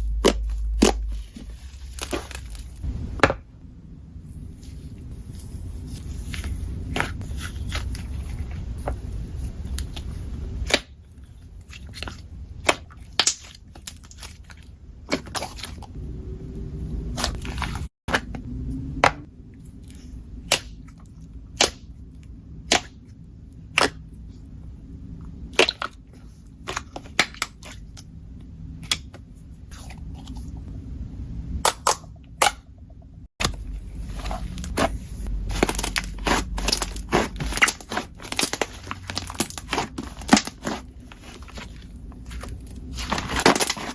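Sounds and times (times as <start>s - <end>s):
slime squelching: 0.0s - 2.8s, 17.0s - 18.3s, 33.4s - 43.9s.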